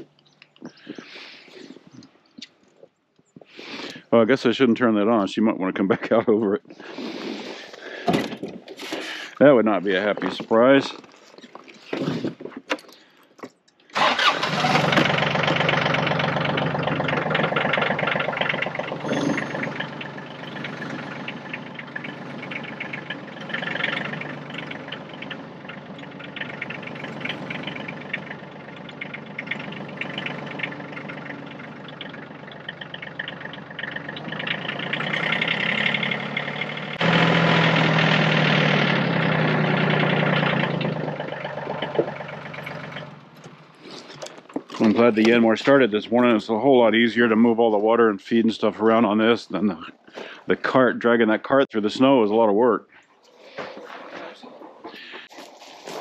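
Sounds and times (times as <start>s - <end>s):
tractor diesel engine running: 14.0s - 47.8s, 53.7s - 56.0s.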